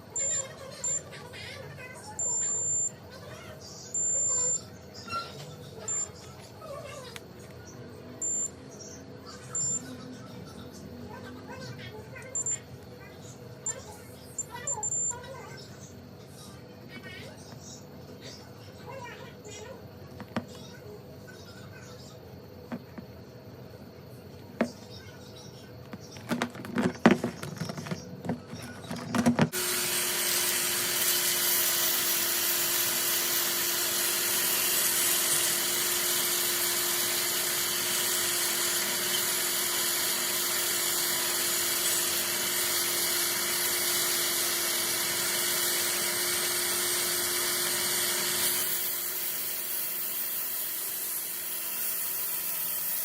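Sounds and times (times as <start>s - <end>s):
clicks and knocks: 25.9s - 29.6s
power tool humming: 25.9s - 53.0s.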